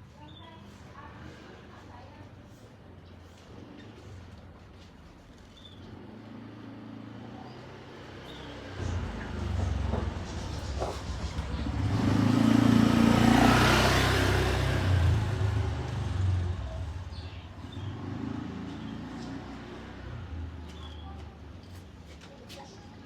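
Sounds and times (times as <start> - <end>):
vehicle passing by: 5.9 - 21.6.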